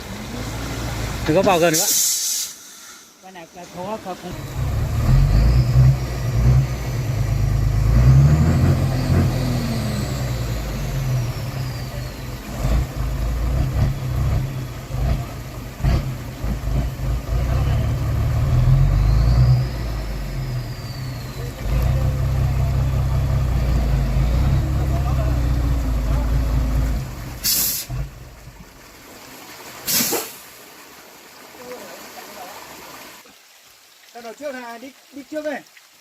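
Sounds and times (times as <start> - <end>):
truck engine revving: 4.3 - 28.4.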